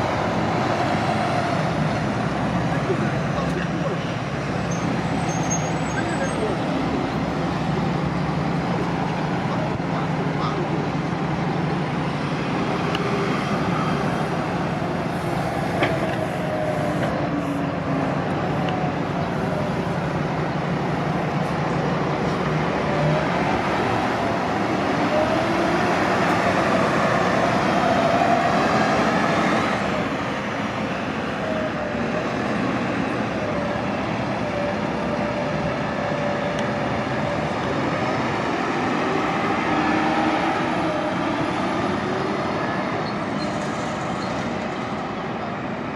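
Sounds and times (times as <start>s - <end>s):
bus engines droning: 0.0s - 45.9s
bus whine rising and falling: 0.0s - 45.9s.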